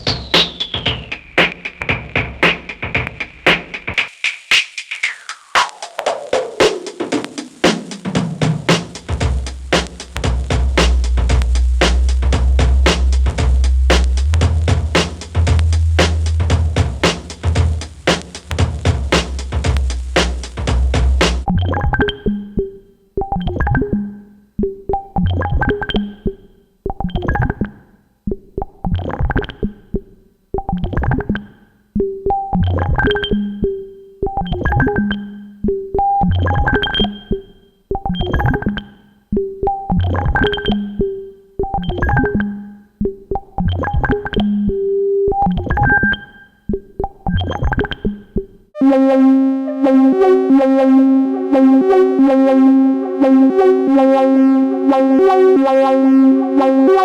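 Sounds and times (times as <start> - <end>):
buzzing synthesizer notes: 8.6 - 22.6, 47.3 - 57.0
synthesizer plucks: 10.2 - 17.8, 21.5 - 57.0.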